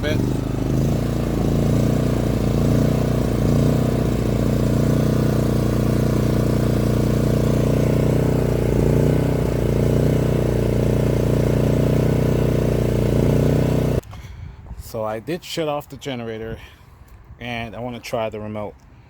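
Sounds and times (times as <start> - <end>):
generator engine running: 0.0 - 14.1.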